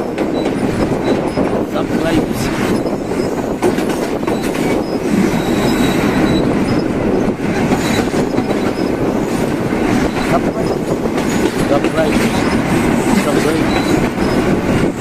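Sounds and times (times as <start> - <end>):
train wheels rumbling on track: 0.0 - 15.0
high-pitched wheel squeals: 4.3 - 7.2, 7.8 - 9.0, 13.7 - 14.4.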